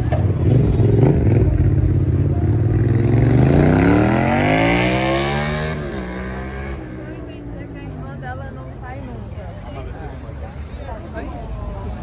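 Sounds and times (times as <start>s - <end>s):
vehicle engine revving up: 0.0s - 7.0s.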